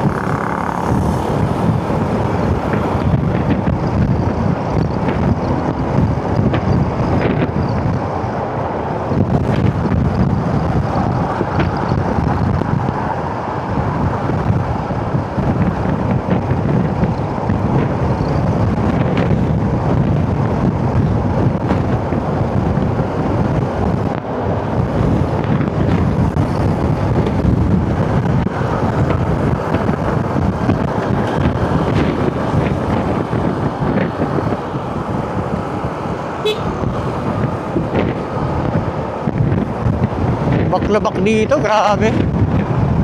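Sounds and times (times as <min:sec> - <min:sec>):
motorcycle engine running: 0:00.0 - 0:06.7
passing vehicles: 0:00.0 - 0:43.0
wind buffeting microphone: 0:00.0 - 0:43.0.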